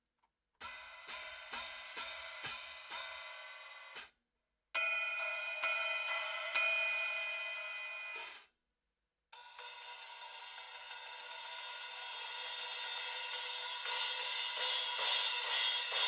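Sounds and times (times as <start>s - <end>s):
cymbals struck with stick: 4.8s - 8.4s, 9.4s - 16.0s.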